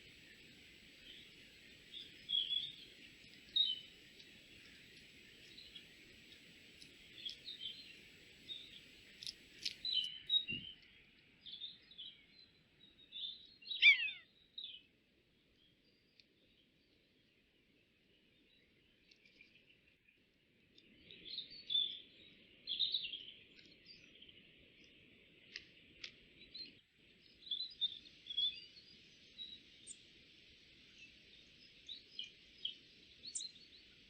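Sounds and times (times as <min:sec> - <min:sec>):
faint high whine: 0:00.0 - 0:12.5
small birds chirping: 0:00.0 - 0:34.0.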